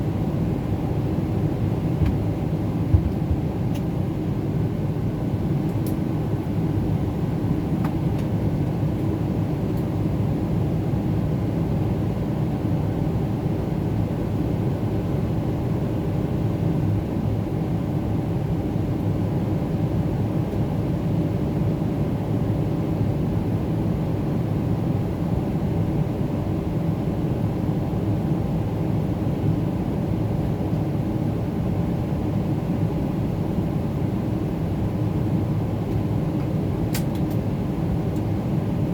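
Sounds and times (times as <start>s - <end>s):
aircraft cabin engine rumble: 0.0s - 38.9s.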